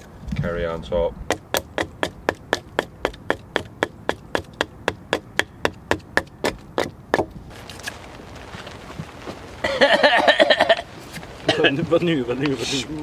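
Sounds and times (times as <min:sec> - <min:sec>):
sharp knocks on wood: 0:01.3 - 0:07.4.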